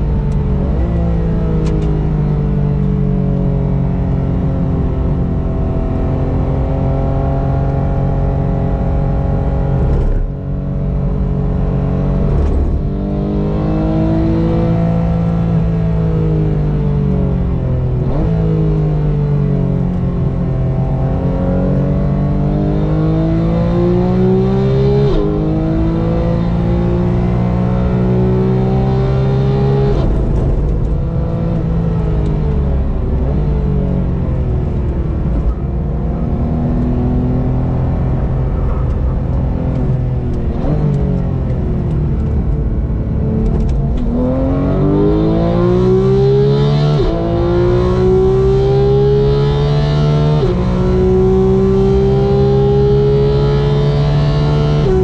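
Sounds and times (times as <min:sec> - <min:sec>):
race car engine accelerating: 0:20.9 - 0:55.0.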